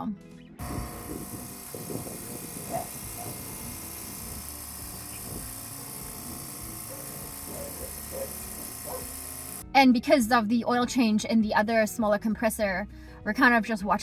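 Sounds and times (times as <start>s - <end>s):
refrigeration compressor humming: 0.6s - 9.6s.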